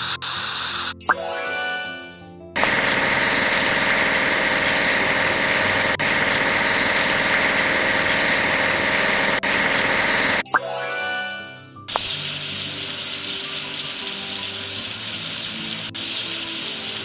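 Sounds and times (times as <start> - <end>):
construction machine engine running: 2.6 - 10.4.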